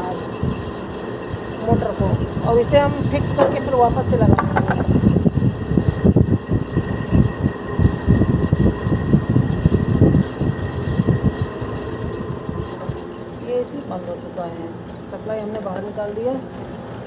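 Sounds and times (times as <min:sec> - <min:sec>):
crackling bearing rattle: 0:00.0 - 0:07.3
fan motor hum: 0:00.0 - 0:17.0.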